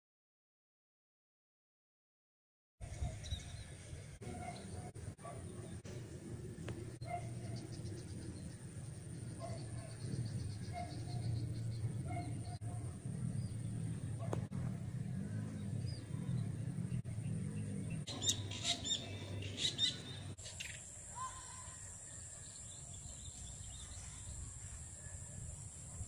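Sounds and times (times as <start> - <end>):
birds chirping: 2.8 - 26.0
low rumble: 5.0 - 20.4.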